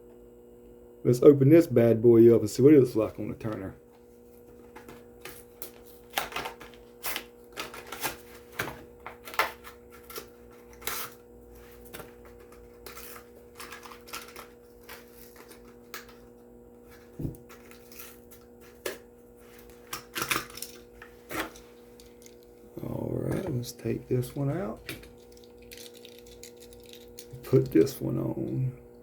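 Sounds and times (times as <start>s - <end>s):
faint steady hum: 0.0s - 29.0s
plastic packaging crackling: 12.4s - 16.3s, 24.5s - 27.9s.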